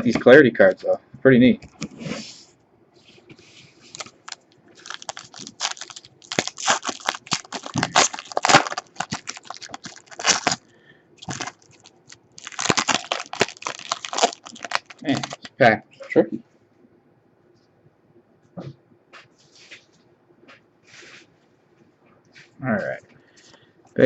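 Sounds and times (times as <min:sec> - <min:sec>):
wrapper crinkling and tearing: 0:03.9 - 0:10.6, 0:11.2 - 0:15.5.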